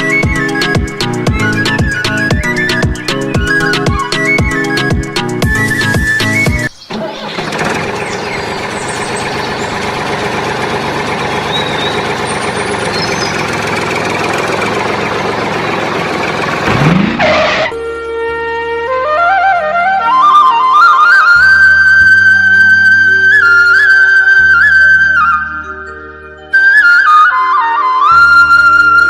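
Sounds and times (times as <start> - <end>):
music: 0.0 - 9.8, 17.7 - 29.0
engine running: 0.0 - 18.0.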